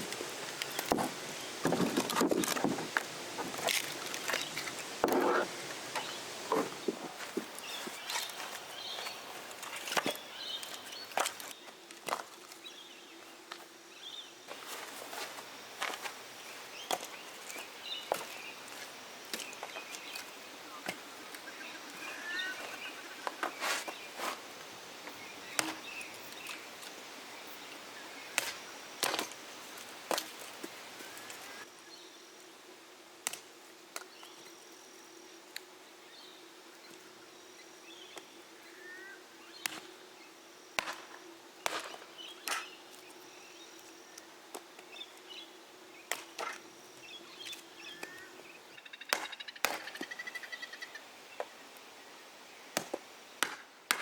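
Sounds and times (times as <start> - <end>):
small birds chirping: 3.9 - 11.8, 25.0 - 28.7, 46.9 - 52.8.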